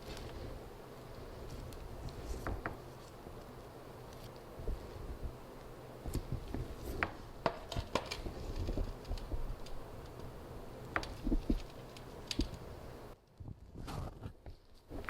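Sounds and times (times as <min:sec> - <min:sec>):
small tools clicking and tapping: 0:06.1 - 0:10.3, 0:10.9 - 0:12.7.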